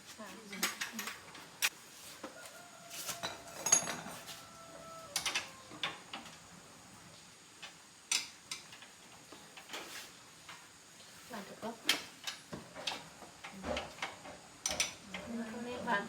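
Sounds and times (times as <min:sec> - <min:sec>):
metal tools clinking: 0:03.2 - 0:04.3.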